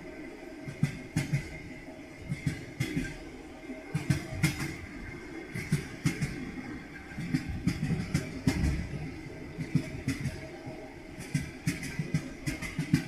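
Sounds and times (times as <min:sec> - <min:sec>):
train wheels knocking over rail joints: 0:07.2 - 0:10.4, 0:11.2 - 0:13.0.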